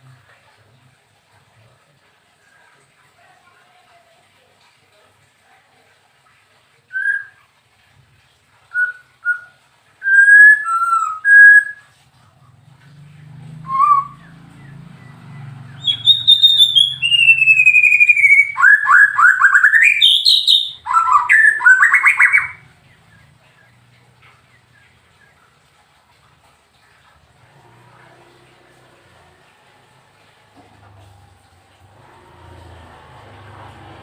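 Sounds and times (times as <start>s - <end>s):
songbird whistling and chattering: 8.8s - 11.8s, 15.0s - 22.6s.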